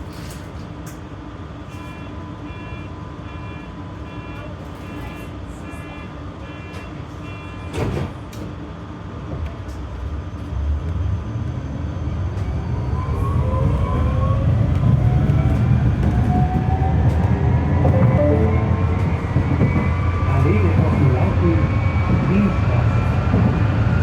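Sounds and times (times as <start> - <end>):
tram warning beeps: 1.8 - 7.8, 15.0 - 24.0
tram rumble: 3.1 - 24.0
tram traction motor whine: 12.0 - 24.0.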